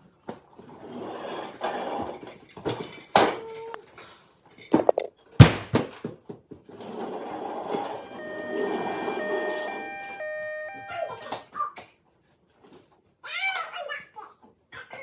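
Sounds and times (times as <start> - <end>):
toy items clattering: 4.7 - 5.6.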